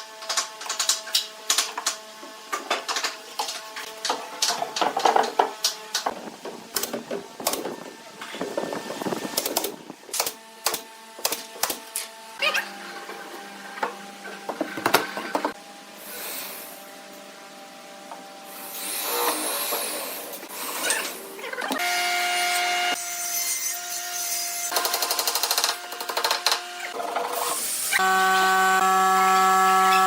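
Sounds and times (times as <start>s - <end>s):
power tool motor whine: 18.5s - 21.2s, 25.6s - 30.0s.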